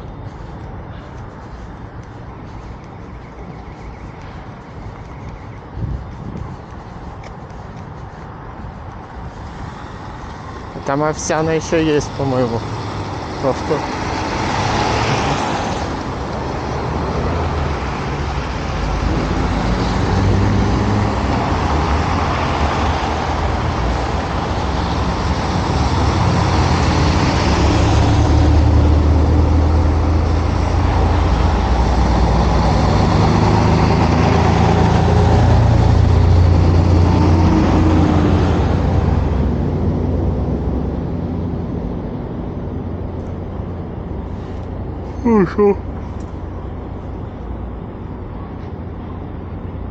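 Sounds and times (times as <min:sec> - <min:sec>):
road traffic passing: 0:00.0 - 0:49.9.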